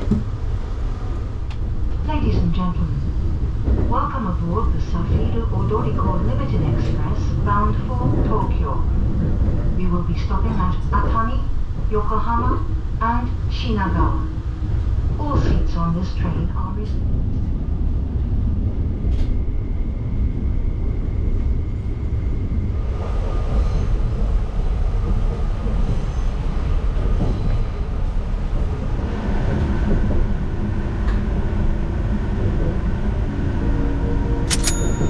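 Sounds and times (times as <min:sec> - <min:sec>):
train rumble inside carriage: 0:00.0 - 0:35.0
sharp clicks: 0:34.5 - 0:34.8.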